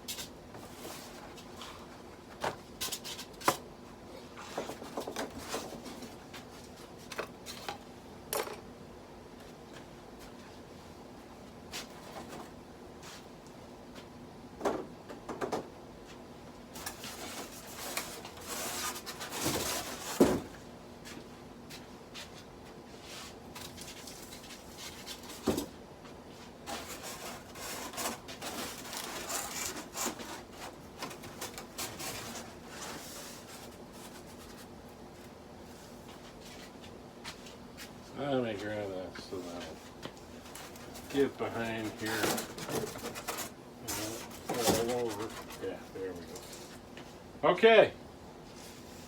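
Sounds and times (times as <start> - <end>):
covering rubbing and rustling: 16.8 - 20.5, 26.6 - 34.7, 40.4 - 46.8.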